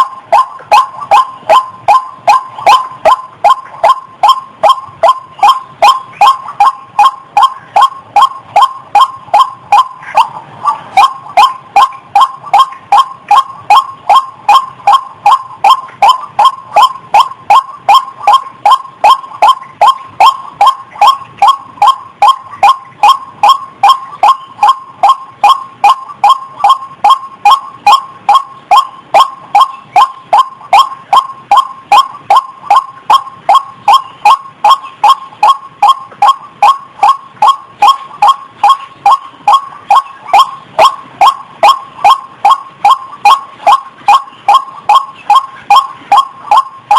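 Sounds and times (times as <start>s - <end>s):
waterhen calling: 0.0s - 46.9s.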